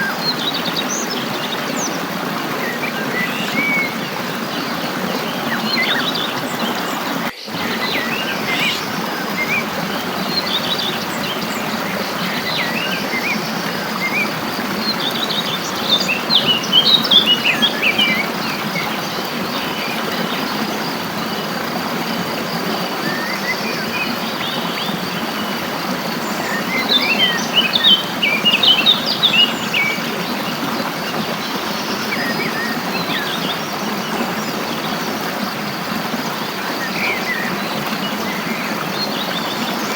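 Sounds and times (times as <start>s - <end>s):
songbirds chirping: 0.0s - 39.9s
stream water flowing: 0.0s - 39.9s.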